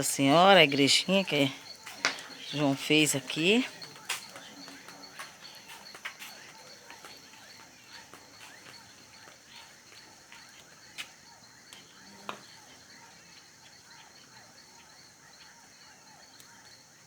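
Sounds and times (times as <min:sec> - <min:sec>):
wood bonfire crackling and popping: 0:00.0 - 0:12.9
insects chirring: 0:00.0 - 0:17.0.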